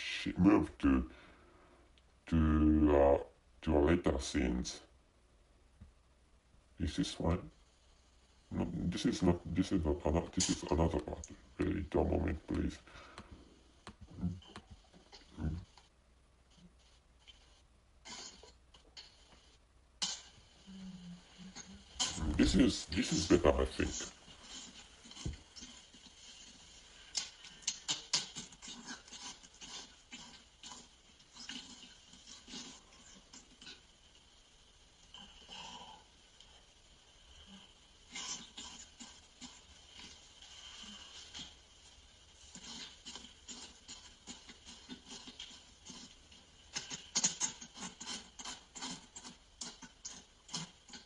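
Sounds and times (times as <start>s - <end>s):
wet sucking mouth sounds: 16.5s - 34.4s, 35.0s - 51.0s.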